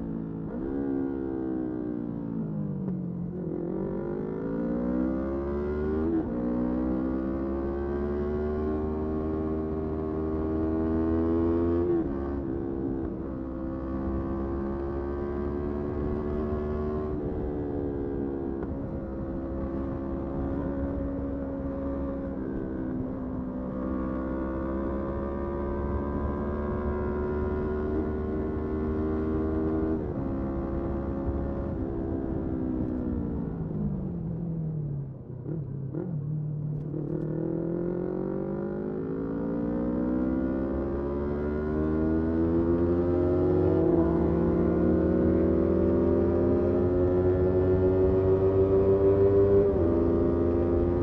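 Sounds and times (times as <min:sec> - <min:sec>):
wind and road rumble: 0:00.0 - 0:51.0
motorcycle engine accelerating: 0:03.3 - 0:51.0.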